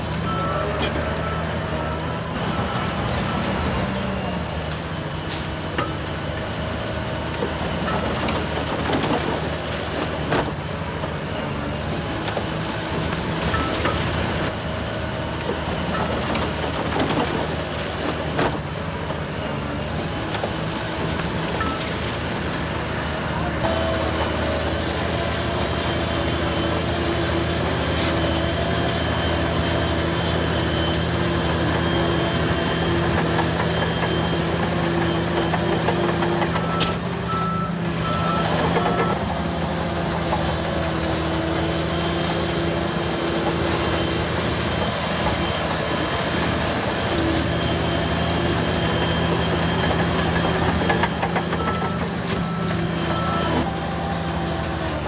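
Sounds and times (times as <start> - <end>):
heavy machine diesel engines: 0.0 - 55.0
reversing alarm beeping: 25.4 - 39.3, 43.9 - 55.0.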